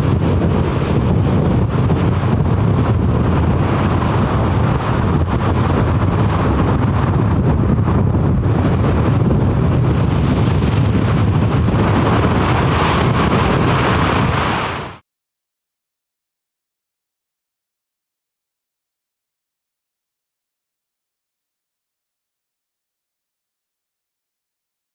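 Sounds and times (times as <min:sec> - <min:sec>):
storm wind buffeting microphone: 0:00.0 - 0:15.0.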